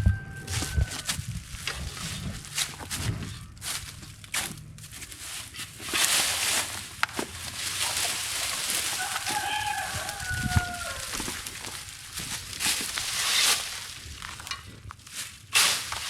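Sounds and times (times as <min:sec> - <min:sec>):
rooster crowing: 0:00.0 - 0:01.2, 0:08.6 - 0:12.2
steady rustling: 0:00.4 - 0:16.0.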